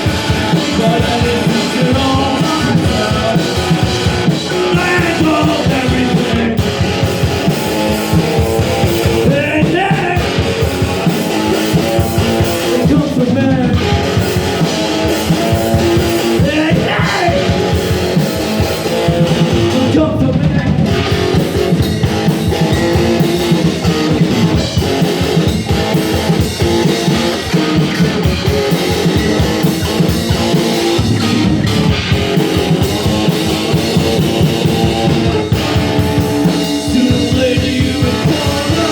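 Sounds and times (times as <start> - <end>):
person singing: 0.0 - 6.8, 8.8 - 11.3, 12.1 - 14.4, 16.0 - 18.0, 19.3 - 21.3, 36.4 - 38.9
rock band playing: 0.0 - 38.9.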